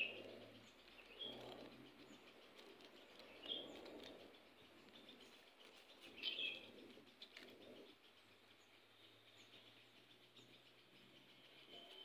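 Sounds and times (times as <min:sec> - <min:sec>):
faint ticks: 0:00.0 - 0:08.7
faint bird chirps: 0:00.0 - 0:12.0.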